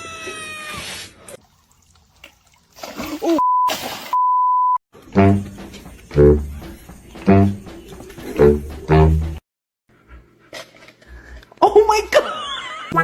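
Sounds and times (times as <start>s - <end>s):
electronic censor bleeps: 3.4s - 4.8s.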